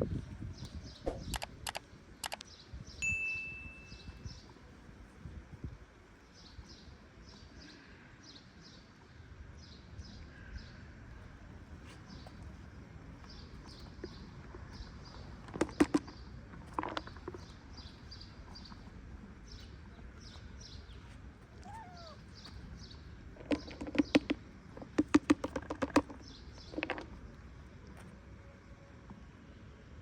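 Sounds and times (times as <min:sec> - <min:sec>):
sharp clicks: 0:01.1 - 0:02.6
small high chirps: 0:01.3 - 0:04.3, 0:21.0 - 0:22.9.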